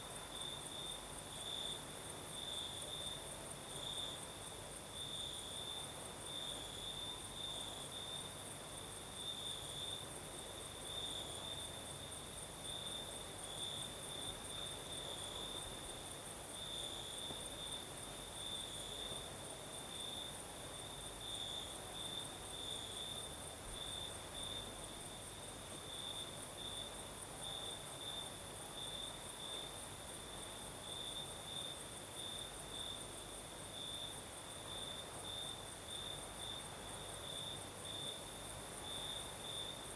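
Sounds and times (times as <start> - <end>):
high continuous cricket trill: 0.0 - 39.9
cricket chirping in even pulses: 10.6 - 24.6.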